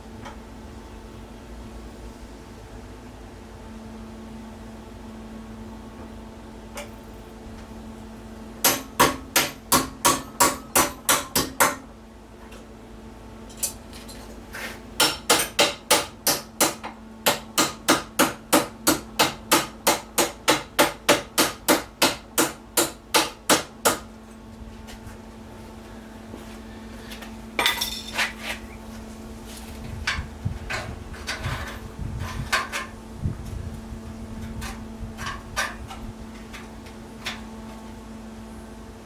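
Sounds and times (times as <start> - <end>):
steady low hum: 0.0 - 39.0
small hammer striking sheet steel: 8.6 - 11.9, 15.0 - 24.1.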